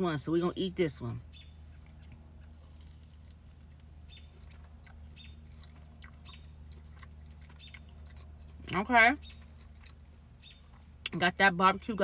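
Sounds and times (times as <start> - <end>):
steady low hum: 0.0 - 12.0
person chewing food: 1.7 - 11.2.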